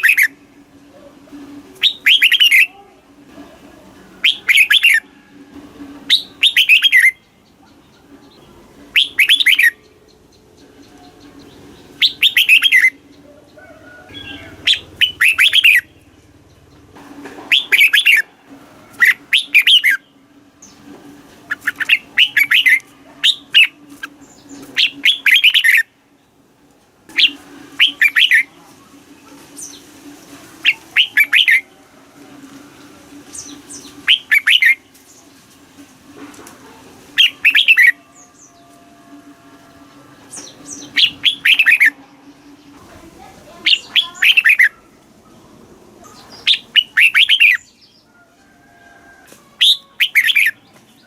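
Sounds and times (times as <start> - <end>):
bird singing warbling phrases: 0.0 - 0.4, 1.8 - 2.8, 4.2 - 5.1, 6.1 - 16.9, 17.5 - 18.2, 18.9 - 20.8, 21.5 - 26.0, 27.1 - 28.6, 30.6 - 31.7, 33.3 - 35.2, 37.2 - 38.7, 40.3 - 45.4, 46.0 - 48.1, 49.6 - 51.0.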